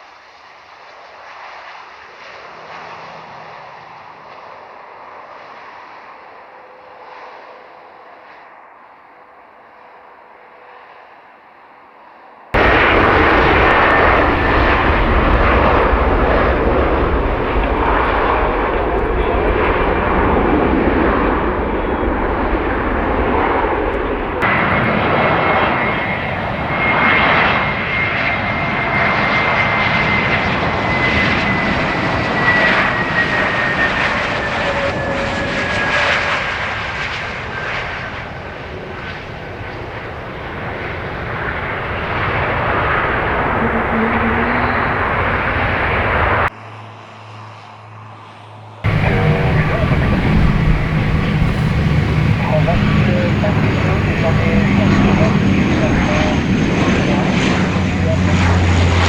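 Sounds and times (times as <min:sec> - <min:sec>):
jet engines roaring: 0:12.6 - 0:46.5, 0:48.9 - 0:59.0
jet engine high whine: 0:12.6 - 0:59.0.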